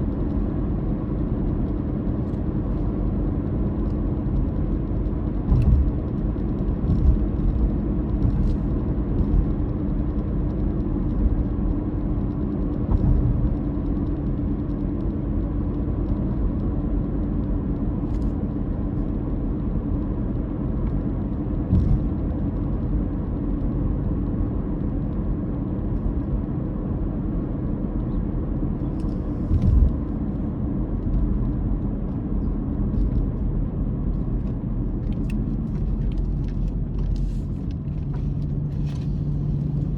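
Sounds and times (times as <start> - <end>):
car engine droning: 0.0 - 39.9
road rumble: 0.0 - 39.9
thumps from road bumps: 4.9 - 14.9, 20.9 - 23.0, 28.8 - 39.9.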